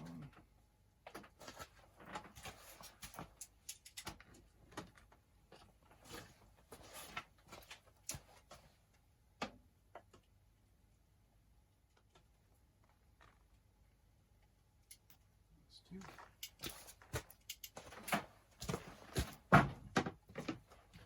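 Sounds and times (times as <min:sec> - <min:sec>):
faint clicks and knocks: 0:00.3 - 0:06.4, 0:11.8 - 0:15.3, 0:16.1 - 0:21.0.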